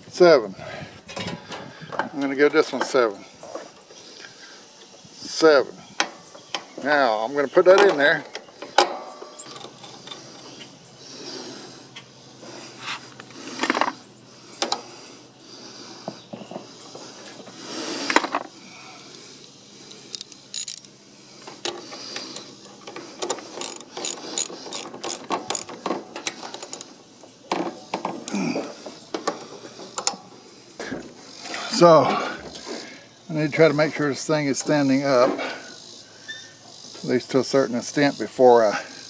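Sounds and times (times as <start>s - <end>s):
metallic clicks and scrapes: 19.4s - 27.9s.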